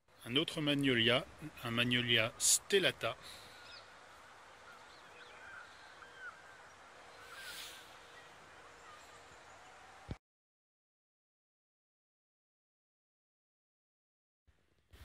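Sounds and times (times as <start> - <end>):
rustle: 0.1 - 10.2
small birds chirping: 0.2 - 10.2.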